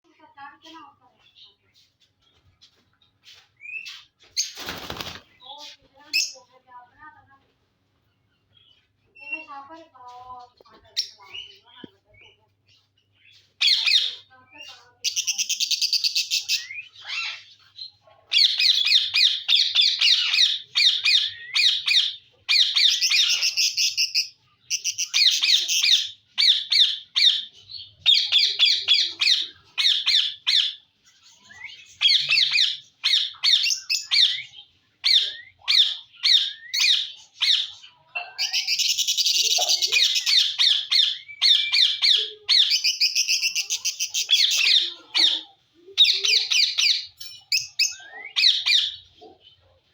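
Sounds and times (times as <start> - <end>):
parakeet squawking: 35.1 - 49.0.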